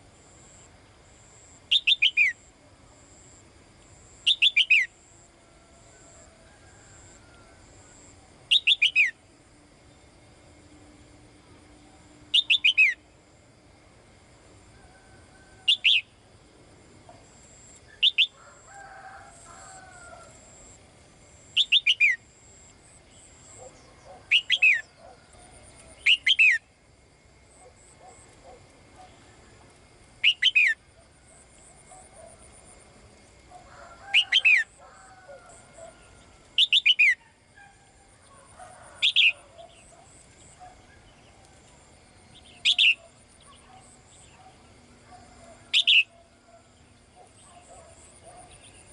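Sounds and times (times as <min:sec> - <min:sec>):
faint bird chirps and warbles: 0:01.4 - 0:02.5, 0:04.1 - 0:05.2, 0:06.0 - 0:10.2, 0:11.5 - 0:13.2, 0:14.7 - 0:16.2, 0:17.0 - 0:18.4, 0:21.4 - 0:26.7, 0:30.2 - 0:32.8, 0:33.5 - 0:48.9.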